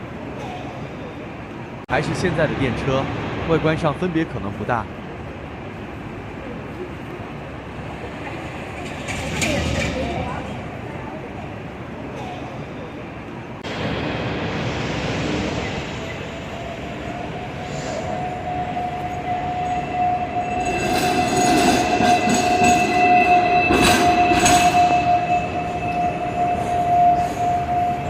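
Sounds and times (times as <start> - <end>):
wheels clacking on track: 7.7 - 10.9
tram wheels squealing: 14.5 - 28.0.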